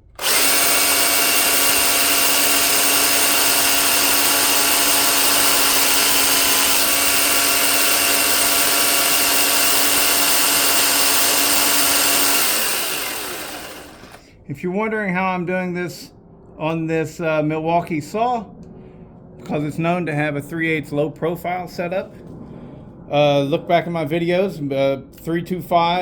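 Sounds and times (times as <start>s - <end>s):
electric chainsaw motor whine: 0.0s - 14.2s.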